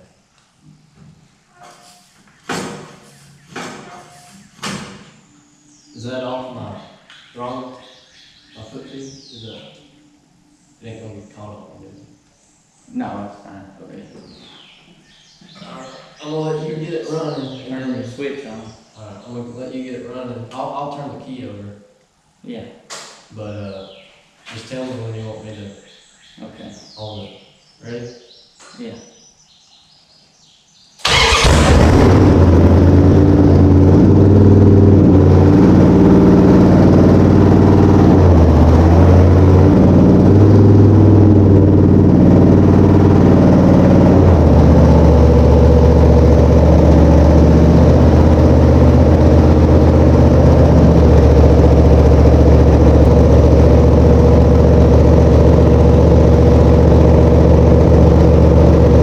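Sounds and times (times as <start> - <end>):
car engine starting and idling: 31.0 - 59.0.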